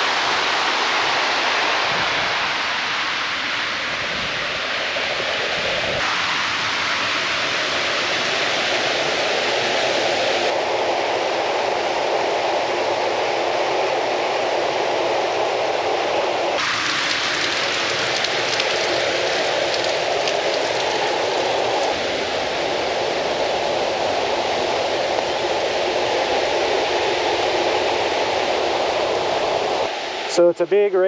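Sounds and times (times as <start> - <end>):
fast-flowing creek rushing: 16.6 - 30.5.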